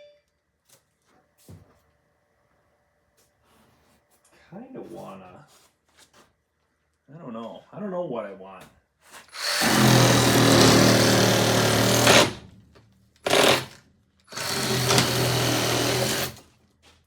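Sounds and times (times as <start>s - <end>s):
reciprocating saw cutting foam: 9.2s - 12.5s, 13.2s - 16.5s.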